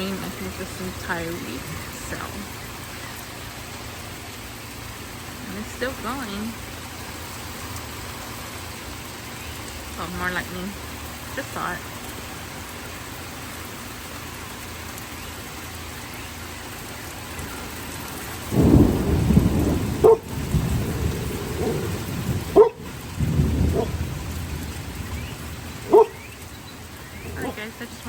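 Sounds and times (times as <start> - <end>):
rain falling: 0.0 - 28.0
thunder rumbling: 18.4 - 28.0
dog barking: 20.0 - 20.3, 21.5 - 21.9, 22.5 - 22.9, 23.7 - 24.0, 25.8 - 26.2.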